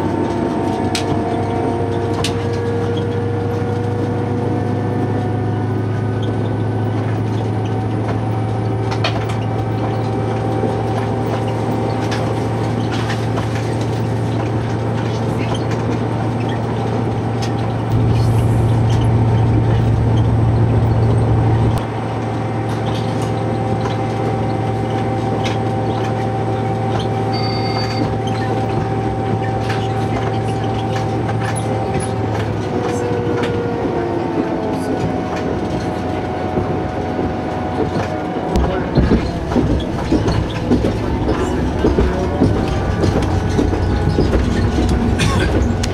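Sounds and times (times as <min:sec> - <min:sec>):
diesel train engine drone: 0:00.0 - 0:45.9
whining tones: 0:16.4 - 0:45.9.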